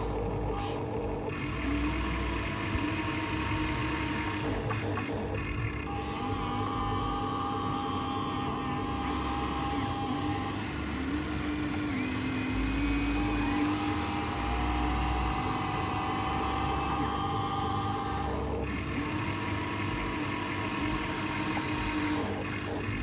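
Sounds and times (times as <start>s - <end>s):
small electric motors whining: 0.0s - 23.0s.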